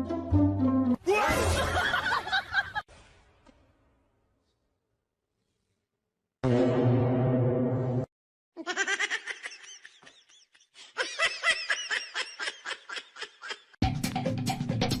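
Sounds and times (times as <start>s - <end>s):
high-pitched giggling laughter: 8.6s - 13.8s.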